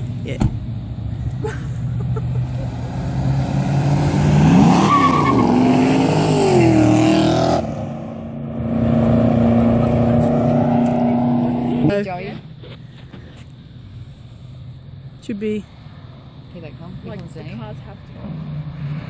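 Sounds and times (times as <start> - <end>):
car engine revving: 0.7 - 12.0, 17.6 - 19.0.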